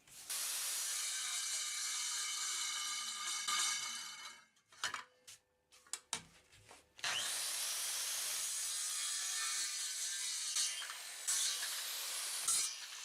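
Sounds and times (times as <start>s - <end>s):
hiss of tool cutting wood: 0.0s - 3.8s, 7.1s - 13.0s.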